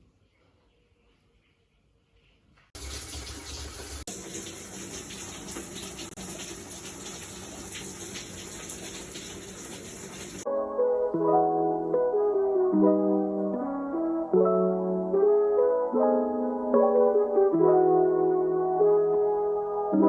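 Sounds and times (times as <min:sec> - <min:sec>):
water running from a tap: 0:02.8 - 0:10.4.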